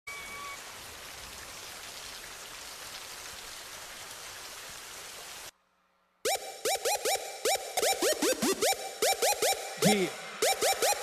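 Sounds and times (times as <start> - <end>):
rain falling: 0.1 - 5.6
electronic music: 6.3 - 11.0.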